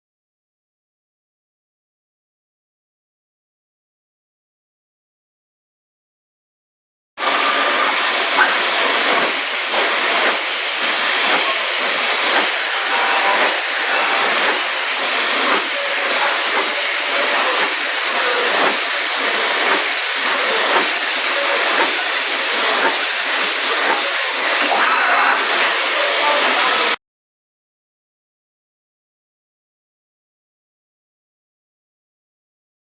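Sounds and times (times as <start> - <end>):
meat band saw running: 7.2 - 27.0.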